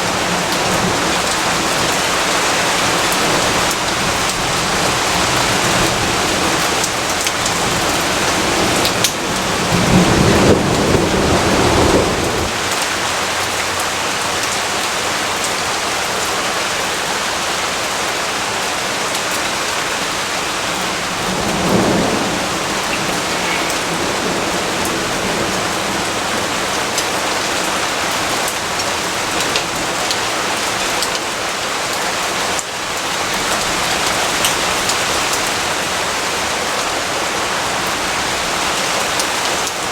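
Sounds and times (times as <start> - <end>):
heavy rain falling: 0.0 - 39.9
low rumble of thunder: 2.9 - 12.8, 20.5 - 27.5.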